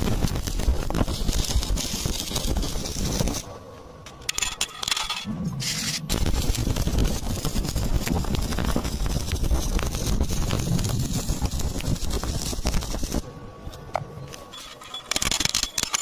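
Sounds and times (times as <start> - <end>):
welding arc crackling: 0.0 - 3.5, 4.4 - 13.2.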